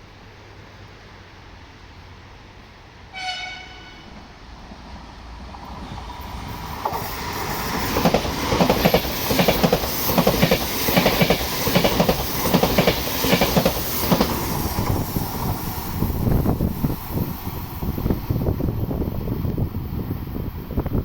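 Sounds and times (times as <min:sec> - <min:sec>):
train wheels clattering over rail joints: 0:04.8 - 0:18.2.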